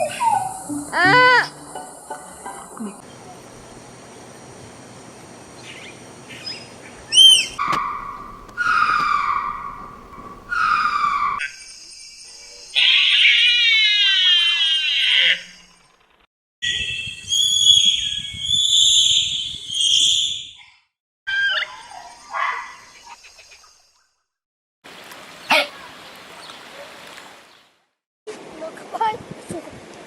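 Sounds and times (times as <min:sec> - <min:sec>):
high squealing chattering calls: 0:05.5 - 0:11.4
animal call falling in pitch: 0:07.1 - 0:11.4.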